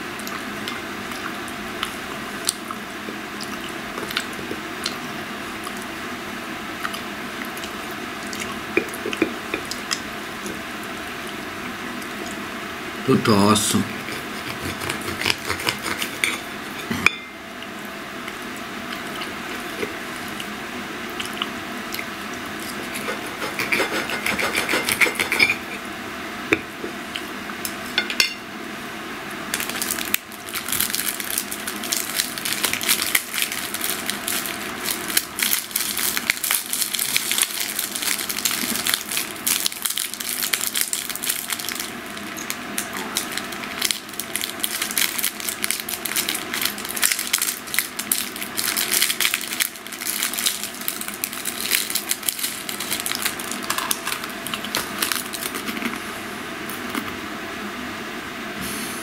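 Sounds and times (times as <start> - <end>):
person chewing meat: 0.1 - 6.0, 6.7 - 10.6, 14.0 - 16.2, 17.6 - 25.7
tableware clinking: 16.2 - 17.4, 28.0 - 28.4.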